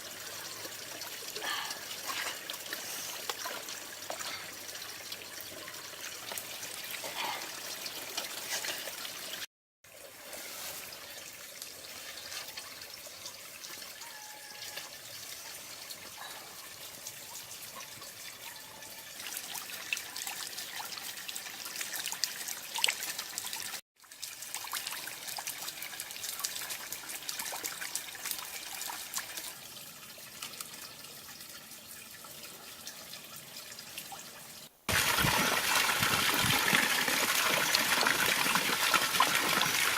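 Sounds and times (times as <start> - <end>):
water trickling down waterfall: 0.0 - 39.9.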